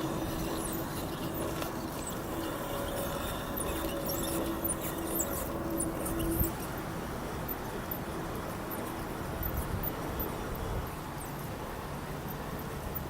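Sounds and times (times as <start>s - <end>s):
small electric motor whining: 0.0s - 6.7s.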